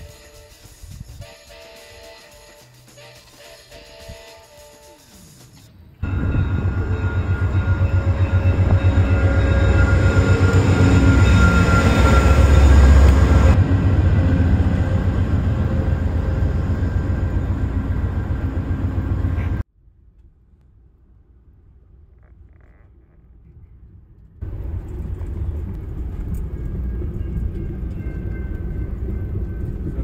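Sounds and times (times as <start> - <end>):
diesel train rumbling past: 6.0 - 19.7, 24.4 - 30.0.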